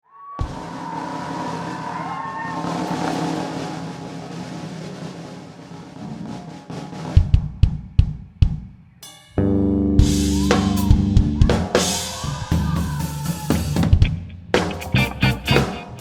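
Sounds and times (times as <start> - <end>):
drum kit fill: 0.4 - 16.0
kick drum thumps: 7.2 - 8.7
live band chord: 9.4 - 12.0, 14.6 - 16.0.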